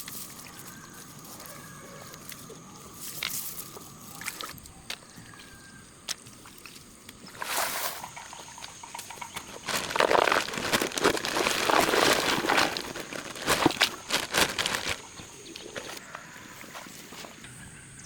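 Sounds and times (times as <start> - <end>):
water sloshing and splashing: 6.1 - 17.4.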